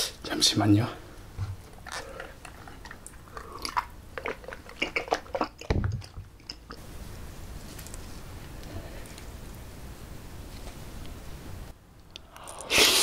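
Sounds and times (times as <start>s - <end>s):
person chewing food: 1.5s - 6.8s
wet mouth clicks: 1.8s - 6.8s, 12.1s - 13.0s.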